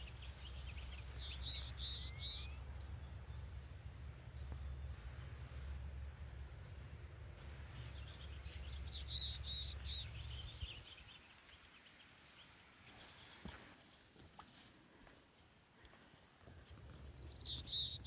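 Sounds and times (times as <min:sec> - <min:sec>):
bird warbling and chirping: 0:00.0 - 0:03.5, 0:07.8 - 0:11.1, 0:17.0 - 0:18.0
low rumble: 0:00.0 - 0:11.0.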